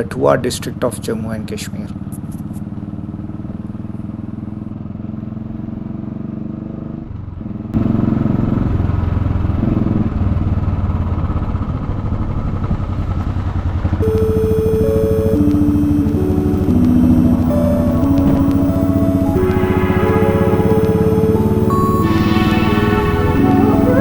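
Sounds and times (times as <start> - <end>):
background music: 14.0 - 24.0.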